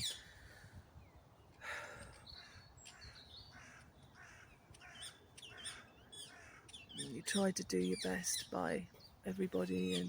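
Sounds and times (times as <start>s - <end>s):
small birds high chirps: 0.0s - 10.0s
bird short harsh calls: 1.6s - 7.4s.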